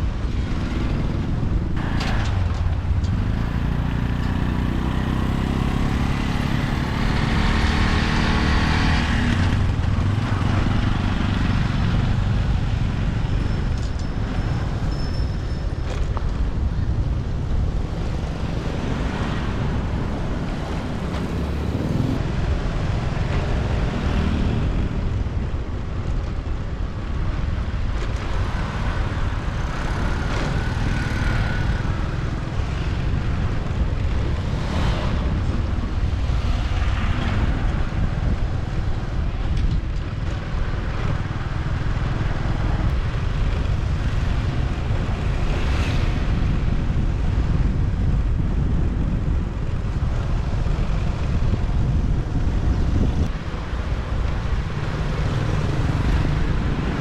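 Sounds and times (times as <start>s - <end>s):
motorbike engine and road rumble: 0.0s - 57.0s
vehicles passing: 0.0s - 57.0s
wind buffeting microphone: 15.5s - 57.0s.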